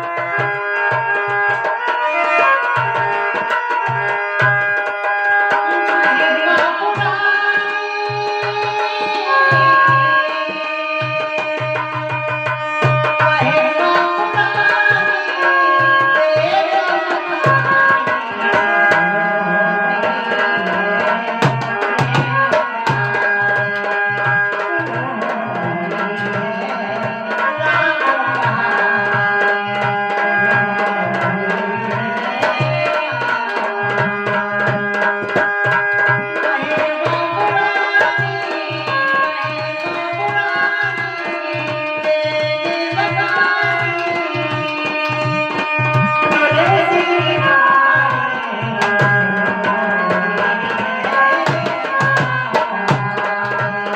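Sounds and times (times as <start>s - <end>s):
sustained melody instrument: 41.3s - 53.9s.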